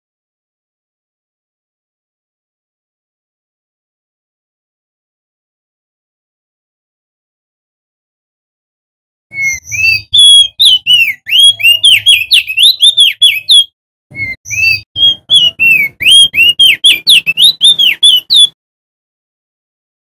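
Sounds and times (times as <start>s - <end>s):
bird singing whistled notes: 9.3s - 18.6s.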